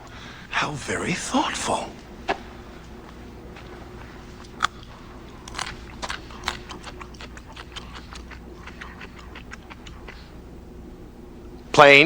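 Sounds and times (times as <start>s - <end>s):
faint steady hum: 0.0s - 12.0s
crunchy vegetable chewing: 3.6s - 10.4s.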